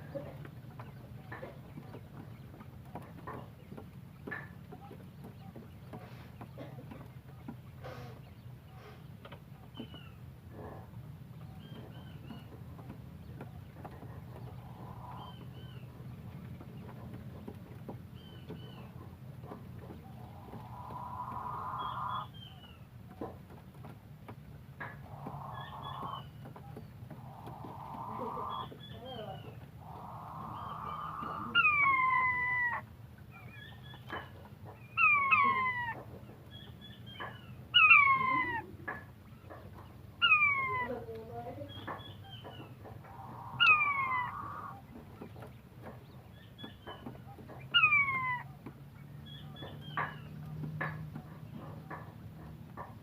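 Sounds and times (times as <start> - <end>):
quail calling: 13.9 - 17.0, 18.2 - 22.8, 24.8 - 53.0
low rumble: 18.6 - 22.8, 25.0 - 32.7.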